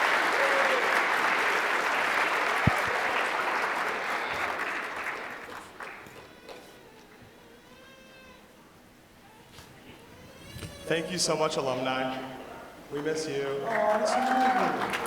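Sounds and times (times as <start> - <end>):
audience applauding: 0.0 - 6.7, 13.0 - 15.0.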